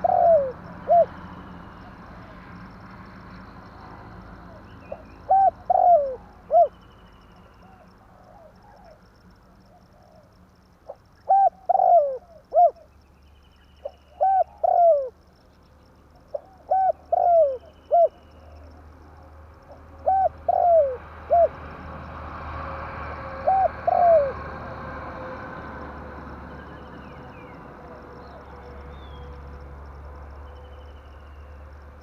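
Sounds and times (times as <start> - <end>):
dove cooing: 0.0 - 2.4, 4.4 - 6.8, 9.7 - 12.9, 13.9 - 15.2, 16.3 - 18.8, 19.6 - 21.7, 23.2 - 25.0.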